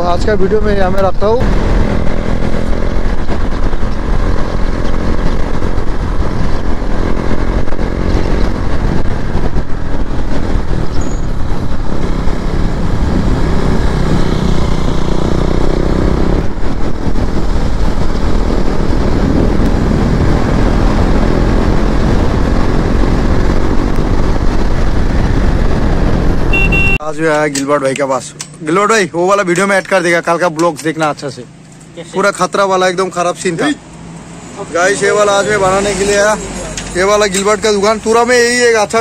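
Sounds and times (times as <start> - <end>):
motorcycle engine cruising: 0.0 - 27.0, 27.6 - 39.0
wind noise on microphone: 0.0 - 27.0.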